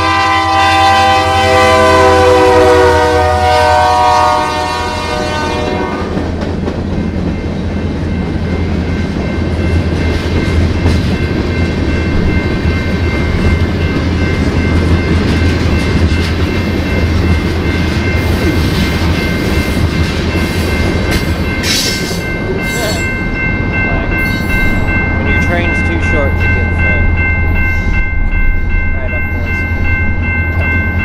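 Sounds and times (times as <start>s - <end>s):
freight train wheels rumbling: 0.0s - 31.0s
high ringing tone: 7.4s - 31.0s.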